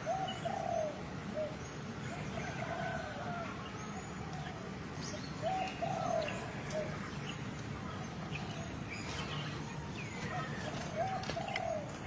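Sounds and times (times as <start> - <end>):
dove cooing: 0.0 - 3.4, 5.4 - 7.3, 7.9 - 12.0.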